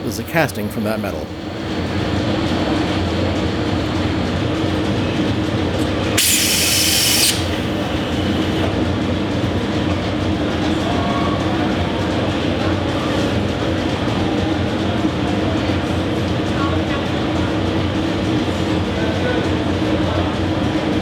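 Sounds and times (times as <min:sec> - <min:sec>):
loud machine drone: 0:05.7 - 0:09.0
sharp hiss: 0:06.2 - 0:08.6.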